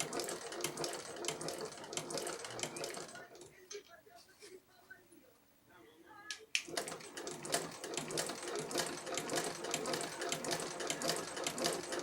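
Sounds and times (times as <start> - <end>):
sewing machine clattering: 0.0 - 3.6, 6.7 - 12.0.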